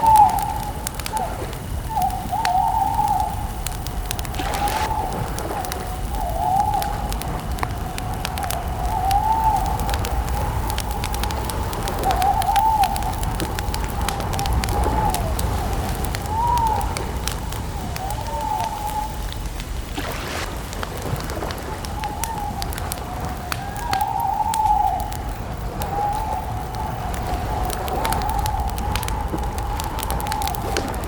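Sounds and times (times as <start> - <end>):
bird calling: 0.0 - 20.5
campfire crackling: 0.0 - 31.0.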